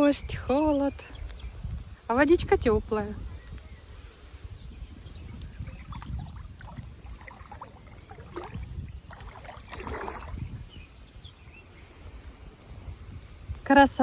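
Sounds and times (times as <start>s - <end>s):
wind buffeting microphone: 0.0s - 14.0s
river water splashing at bank: 5.2s - 10.8s.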